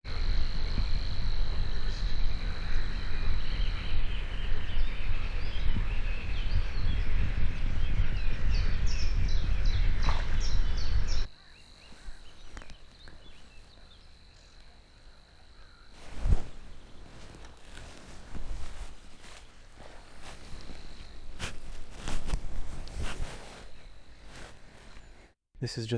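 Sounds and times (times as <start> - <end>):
insect trill: 0.1 - 6.0
bird chirping: 0.2 - 22.2.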